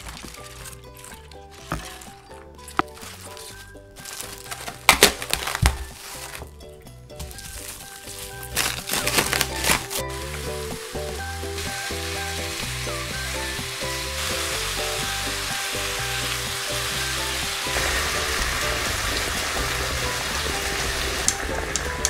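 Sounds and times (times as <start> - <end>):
meat and vegetables sizzling in a wok: 7.9 - 22.0.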